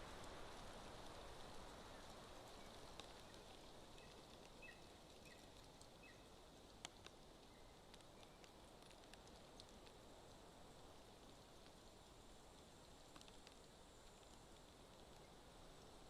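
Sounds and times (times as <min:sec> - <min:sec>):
light rain hiss: 0:00.0 - 0:16.0
drip ticks: 0:02.8 - 0:10.4.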